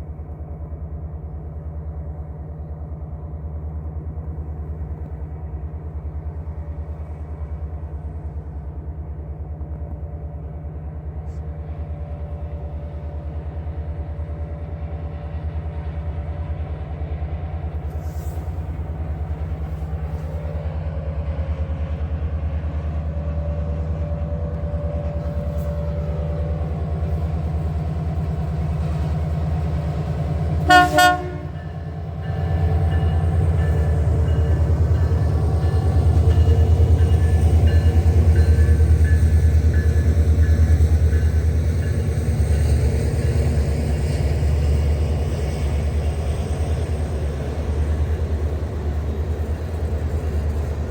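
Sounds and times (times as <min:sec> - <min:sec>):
diesel train rumble: 0:00.0 - 0:50.9
locomotive horn blast: 0:30.6 - 0:31.8.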